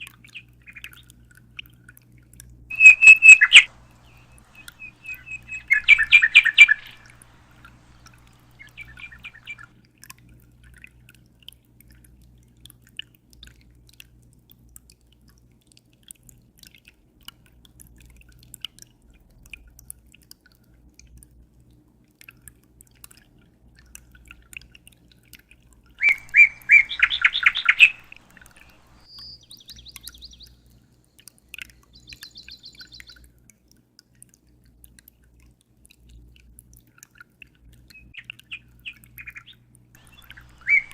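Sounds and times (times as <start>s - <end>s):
faint drips: 0.0s - 40.9s
low steady hum: 2.5s - 10.8s, 26.0s - 33.2s, 39.4s - 40.9s
small bird chirping: 2.7s - 9.7s, 26.0s - 30.8s, 31.7s - 33.2s, 37.9s - 40.9s.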